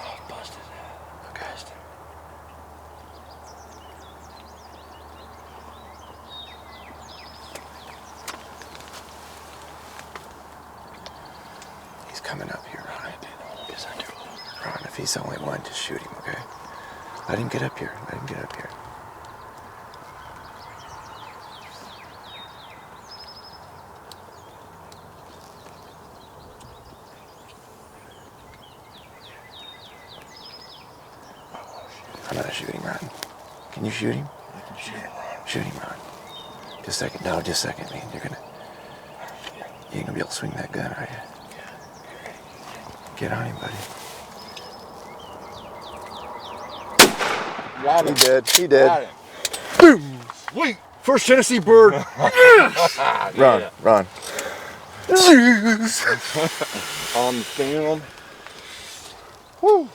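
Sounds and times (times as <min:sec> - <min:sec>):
songbirds chirping and trilling: 0:00.0 - 0:59.9
woodland background hiss: 0:00.0 - 0:59.9
sharp clicks: 0:47.0 - 0:48.7.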